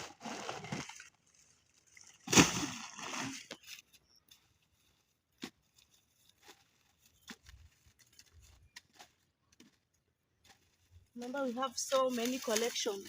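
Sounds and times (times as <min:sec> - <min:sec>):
corn cobs and sack rustling: 0:04.6 - 0:09.8, 0:10.4 - 0:13.0.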